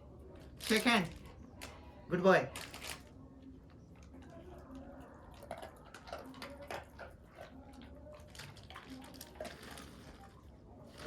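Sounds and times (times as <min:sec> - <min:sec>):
dog licking and chewing: 0:04.7 - 0:10.1.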